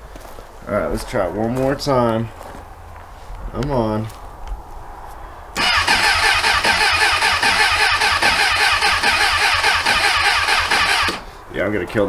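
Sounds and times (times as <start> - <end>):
motorcycle starter cranking engine: 5.6 - 11.4.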